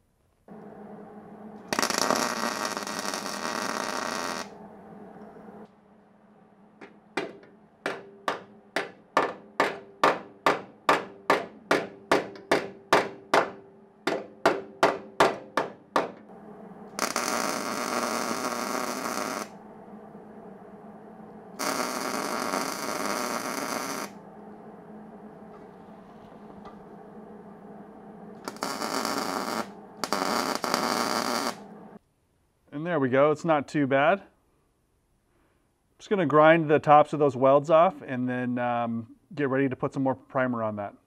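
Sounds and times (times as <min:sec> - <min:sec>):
welding arc: 0:00.5 - 0:04.6, 0:16.9 - 0:19.6, 0:21.5 - 0:24.2, 0:28.3 - 0:32.0.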